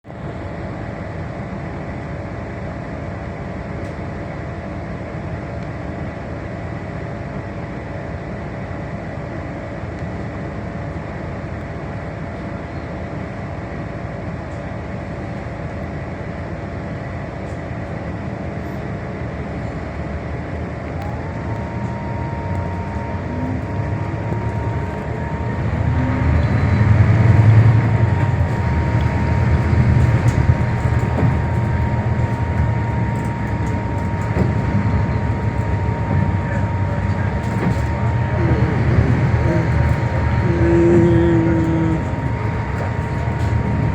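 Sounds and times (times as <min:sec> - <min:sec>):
bus engine idling and revving: 0:00.0 - 0:43.9
rising engine whine: 0:18.6 - 0:43.9.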